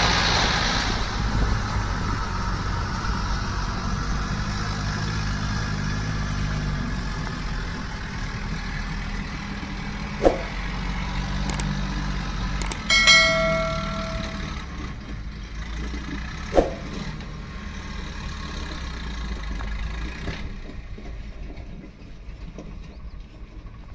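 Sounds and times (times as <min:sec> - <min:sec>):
metallic clang: 0:12.6 - 0:14.6.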